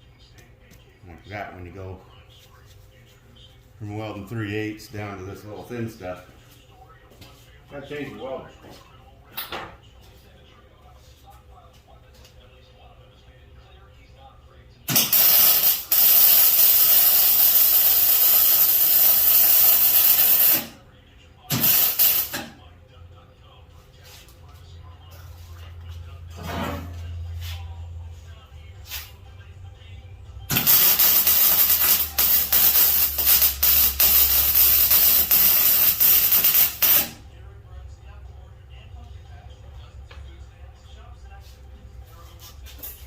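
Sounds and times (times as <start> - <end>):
welding arc crackling and hissing: 14.9 - 20.7, 21.5 - 22.4, 30.5 - 37.2.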